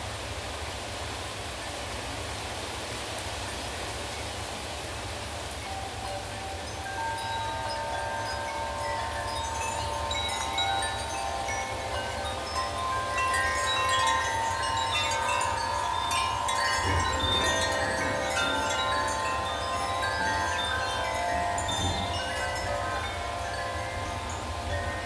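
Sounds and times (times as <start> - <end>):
metal wind chimes ringing: 5.1 - 25.0
wind rumble on microphone: 6.2 - 25.0.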